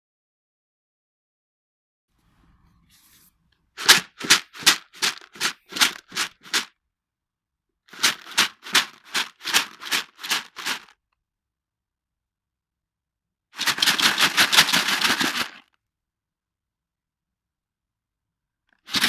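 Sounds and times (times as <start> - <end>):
dry cat food rattling in container: 3.8 - 6.7, 7.9 - 10.9, 13.6 - 15.6.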